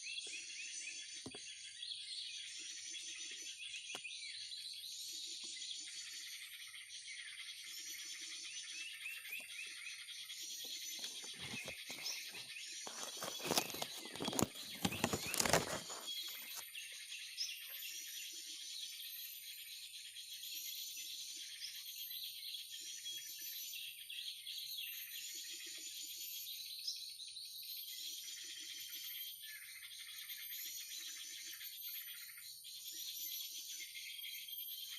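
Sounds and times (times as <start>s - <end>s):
small birds chirping: 0.0s - 34.9s
rustling and knocking: 12.9s - 16.6s.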